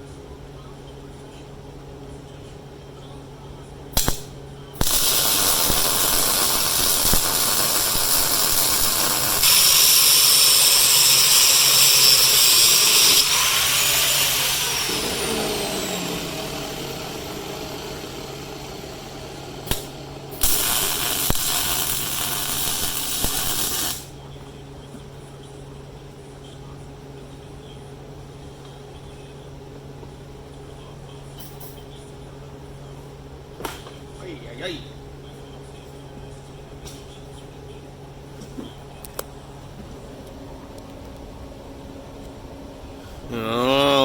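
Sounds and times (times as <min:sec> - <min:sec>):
angle grinder grinding metal: 0:04.8 - 0:24.1.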